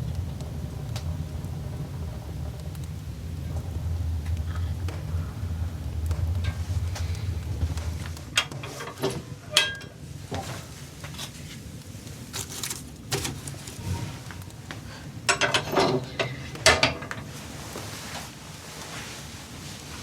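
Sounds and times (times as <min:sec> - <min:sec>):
objects clicking and clattering: 0:12.1 - 0:17.4.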